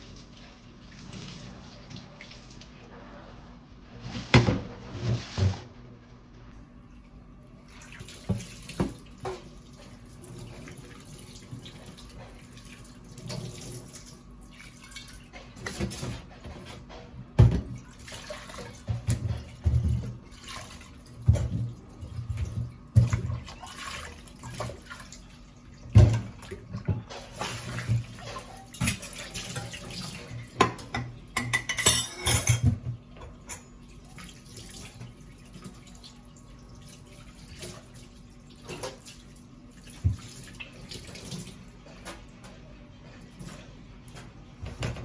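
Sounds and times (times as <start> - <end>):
tap water running: 7.0 - 45.0
dishes and cutlery clinking: 30.6 - 33.7.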